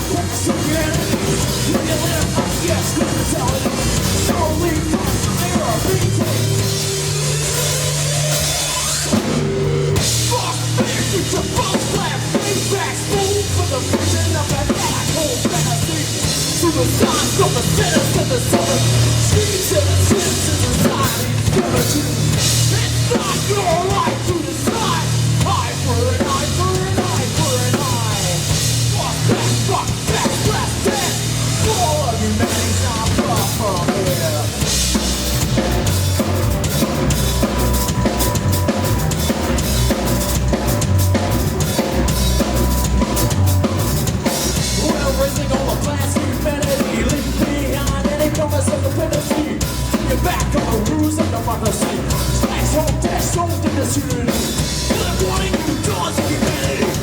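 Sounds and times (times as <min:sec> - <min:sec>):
bass drum and snare: 0:00.0 - 0:57.0
heavy rock band playing: 0:00.0 - 0:57.0.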